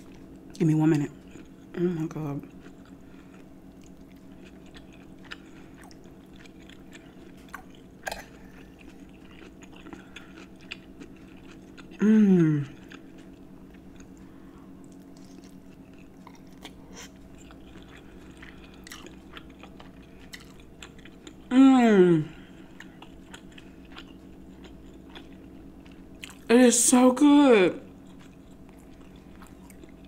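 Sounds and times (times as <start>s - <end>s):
person humming mmm: 1.7s - 2.1s, 11.9s - 12.9s, 21.5s - 22.5s
close chewing with mouth clicks: 2.4s - 12.0s, 12.6s - 21.5s, 22.6s - 26.5s, 27.9s - 30.0s.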